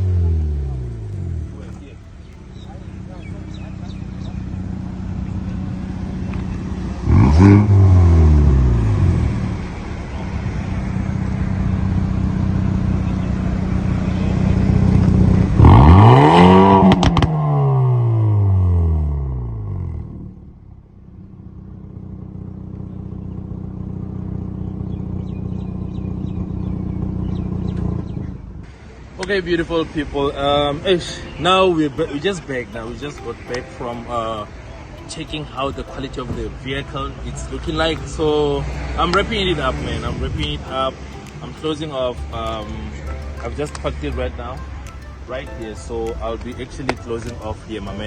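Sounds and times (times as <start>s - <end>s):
car engine revving: 0.0s - 20.4s, 36.2s - 48.0s
exhaust cracks: 0.0s - 20.6s.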